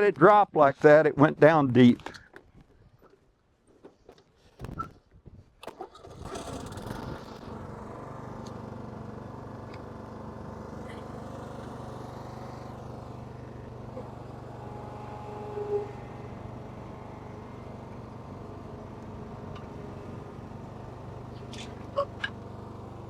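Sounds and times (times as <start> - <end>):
lawn mower pull-start tugs: 5.6 - 23.0
lawn mower engine running: 5.7 - 23.0.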